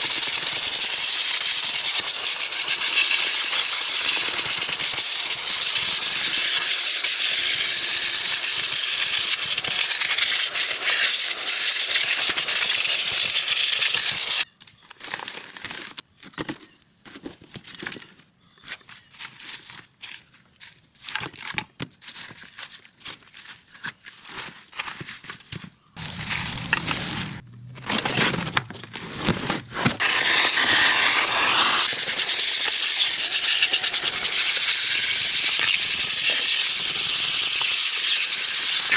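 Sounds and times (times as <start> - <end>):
detailing tool hissing: 30.0 - 38.9.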